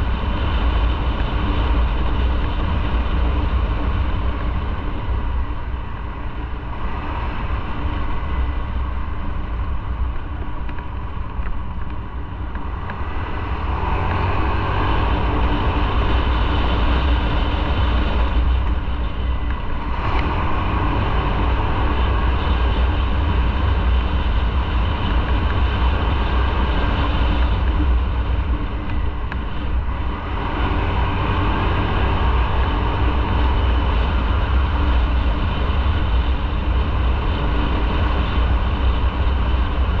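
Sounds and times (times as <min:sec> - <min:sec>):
wind and road noise: 0:00.0 - 0:40.0.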